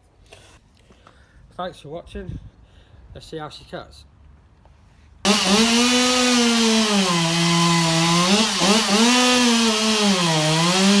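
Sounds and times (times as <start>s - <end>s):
chainsaw cutting wood: 5.3s - 11.0s.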